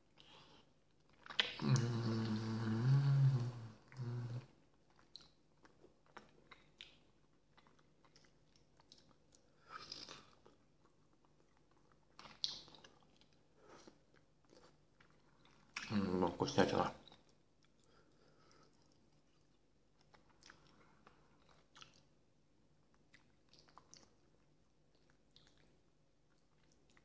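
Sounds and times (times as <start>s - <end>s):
close-up chewing: 0.0s - 2.4s, 3.4s - 27.0s
man humming: 1.6s - 4.5s.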